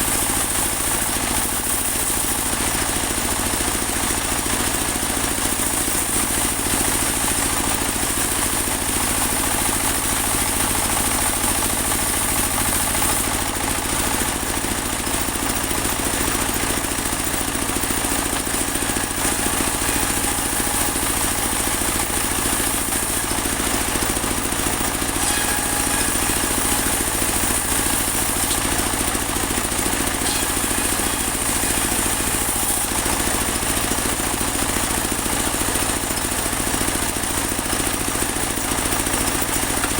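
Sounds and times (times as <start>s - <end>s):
band saw sawing log: 0.0s - 37.3s.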